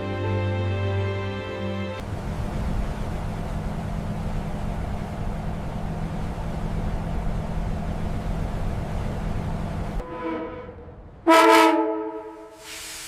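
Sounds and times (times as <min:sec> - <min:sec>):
constant low hum: 0:02.0 - 0:12.5
low machinery rumble: 0:02.0 - 0:12.5
hiss: 0:12.5 - 0:13.0.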